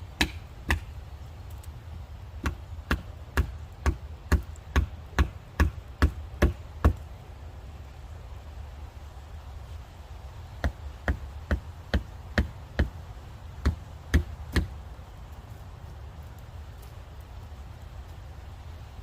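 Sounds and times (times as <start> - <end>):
blows driving wooden wedges: 0.0 - 1.0, 2.4 - 7.0.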